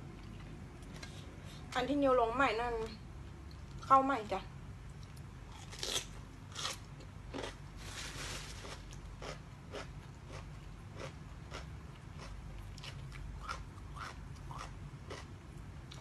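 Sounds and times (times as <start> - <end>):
person chewing crunchy food: 4.9 - 16.0.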